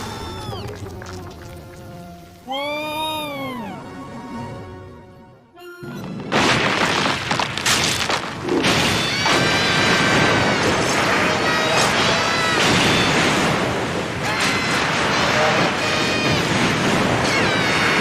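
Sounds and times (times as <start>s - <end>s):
distorted cartoon crashing noise: 5.9s - 18.0s.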